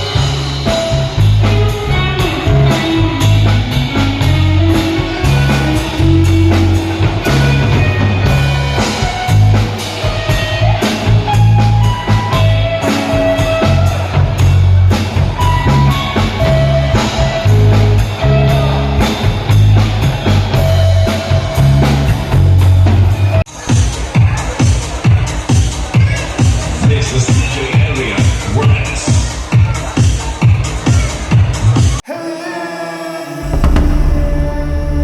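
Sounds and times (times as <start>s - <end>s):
rock band playing: 0.0s - 23.4s
drum kit: 33.2s - 35.0s
pulsing bass line: 33.2s - 35.0s.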